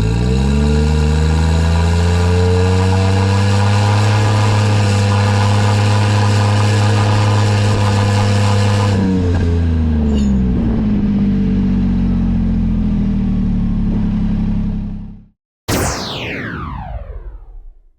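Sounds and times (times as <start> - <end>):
small truck engine idling: 10.8 - 15.3.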